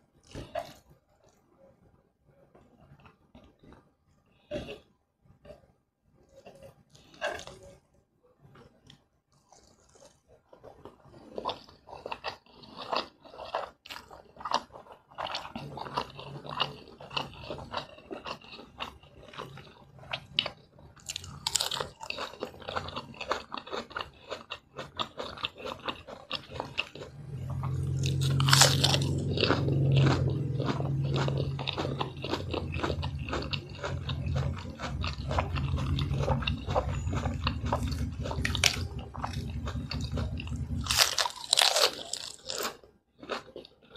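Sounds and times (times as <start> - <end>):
chewing with mouth clicks: 6.3 - 7.8, 8.6 - 43.9
low hum: 26.9 - 42.4.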